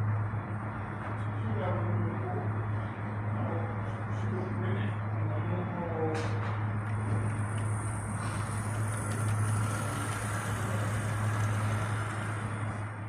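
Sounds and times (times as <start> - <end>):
continuous rumbling noise: 0.0 - 13.0
low hum: 6.6 - 13.0.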